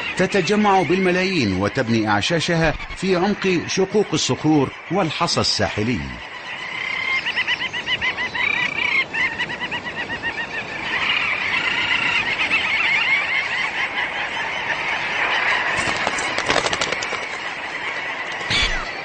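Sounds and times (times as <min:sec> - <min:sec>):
seabirds chattering calls: 0:00.0 - 0:19.0.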